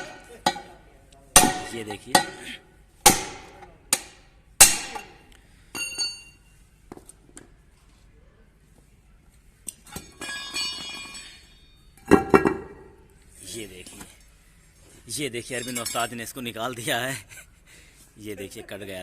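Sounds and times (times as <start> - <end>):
hammer striking metal: 1.4 - 5.2
light metal clinks: 5.7 - 6.5, 15.5 - 16.2.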